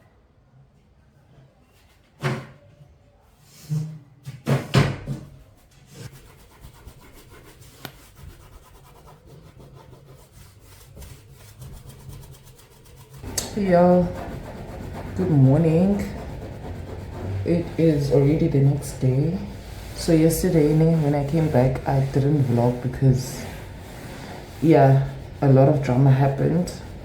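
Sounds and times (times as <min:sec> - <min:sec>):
rubbing on hard surface: 0:05.4 - 0:27.0.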